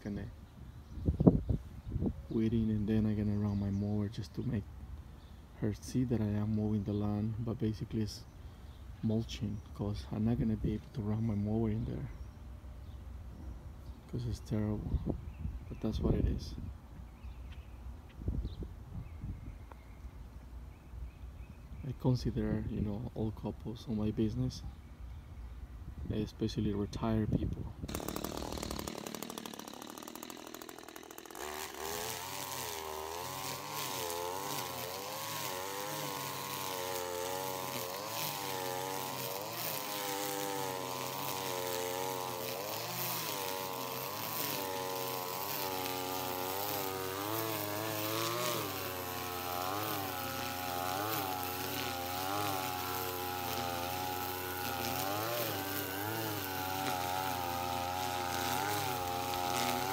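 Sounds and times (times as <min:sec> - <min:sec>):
string trimmer engine running: 0:27.9 - 0:59.9.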